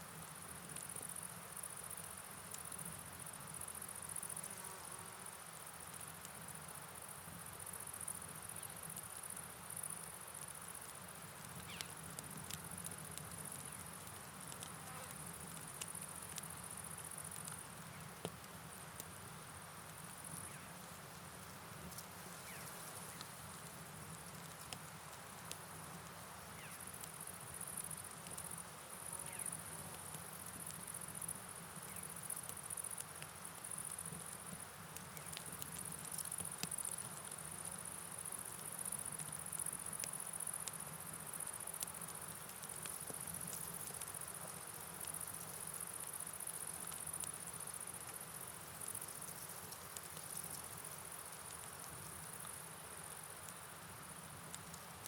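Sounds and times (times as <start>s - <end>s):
rain hiss: 0.0s - 55.0s
insects chirping: 0.1s - 55.0s
faint clicks: 9.8s - 19.2s, 21.4s - 28.6s, 29.2s - 37.8s, 41.7s - 52.6s.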